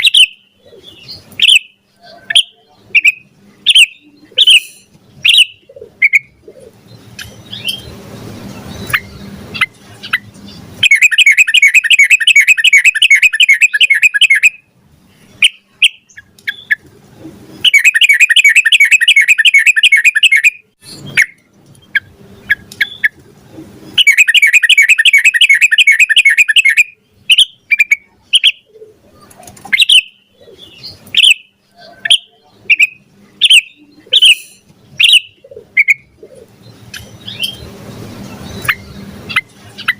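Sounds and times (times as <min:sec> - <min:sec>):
bird chirps and calls: 0:00.0 - 0:39.9
bird rapid trills: 0:07.0 - 0:14.6, 0:17.6 - 0:23.2, 0:23.9 - 0:28.6.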